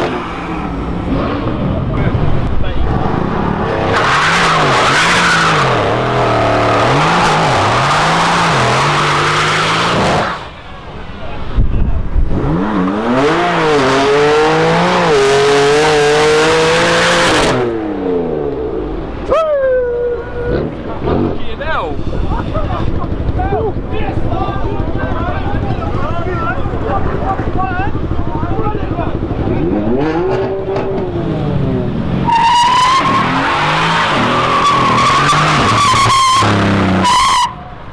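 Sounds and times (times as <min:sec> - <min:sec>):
sports car engine accelerating: 0:29.0 - 0:37.4
tyres squealing: 0:32.2 - 0:37.7.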